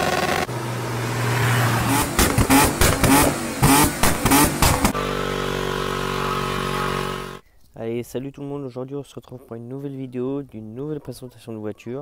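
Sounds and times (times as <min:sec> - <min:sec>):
car engine revving: 0:00.0 - 0:07.4
exhaust pops and cracks: 0:02.1 - 0:05.0.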